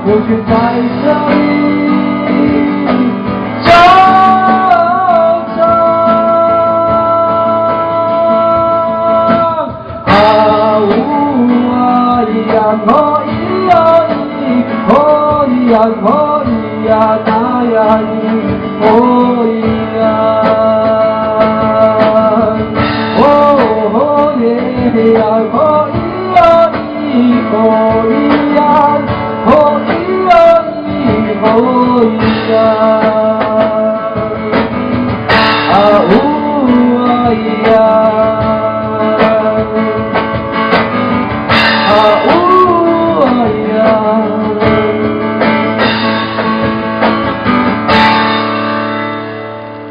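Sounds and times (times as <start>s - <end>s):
guitar: 0.0s - 49.9s
sustained instrumental backing: 9.7s - 49.9s.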